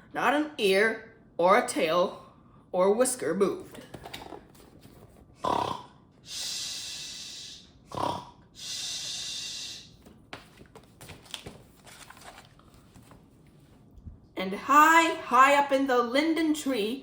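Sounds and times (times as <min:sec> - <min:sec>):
person imitating snoring: 0:05.4 - 0:09.9.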